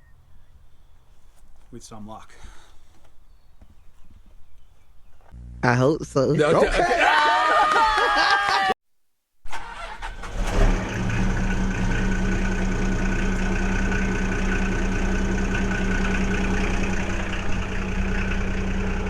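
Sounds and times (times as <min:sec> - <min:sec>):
diesel engine idling: 0:09.5 - 0:19.0
diesel truck engine cranking: 0:09.5 - 0:19.0.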